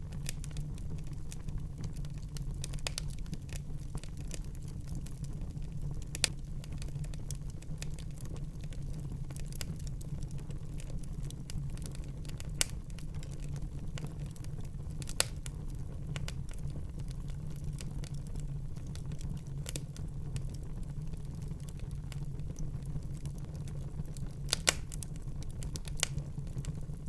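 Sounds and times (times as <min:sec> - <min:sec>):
fire crackling in a fireplace: 0:00.0 - 0:27.0
low fire rumble: 0:00.0 - 0:27.0
sharp fire pops: 0:24.4 - 0:26.7.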